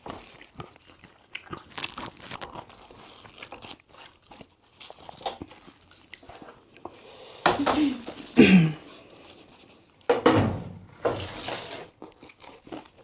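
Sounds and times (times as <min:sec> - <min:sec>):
wet chewing: 0:00.0 - 0:07.2, 0:11.8 - 0:13.0.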